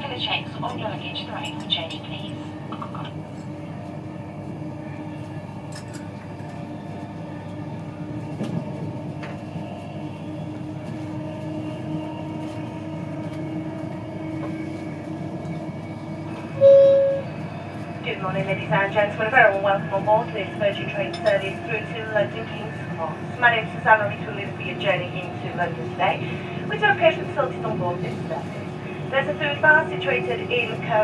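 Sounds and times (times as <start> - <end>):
train wheels rumbling on rail: 0.0 - 31.0
low hum: 16.5 - 17.5
short loud tone: 16.6 - 17.3.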